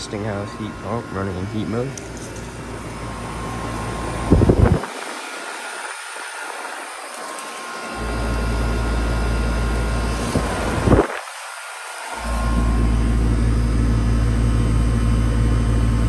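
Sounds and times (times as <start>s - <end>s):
deep rumble: 0.0s - 4.9s
heat pump fan and compressor: 0.0s - 16.0s.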